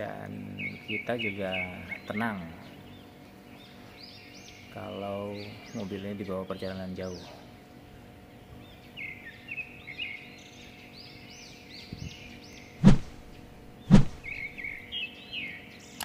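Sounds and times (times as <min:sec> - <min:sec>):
small bird chirping: 0:08.7 - 0:16.0.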